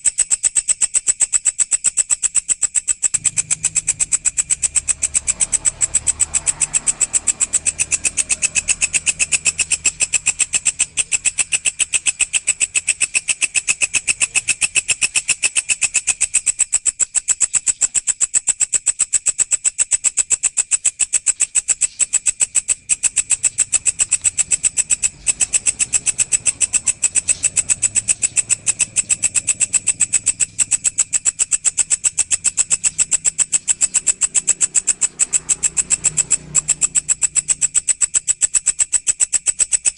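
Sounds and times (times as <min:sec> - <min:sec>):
grasshopper buzzing trill: 0:00.0 - 0:39.9.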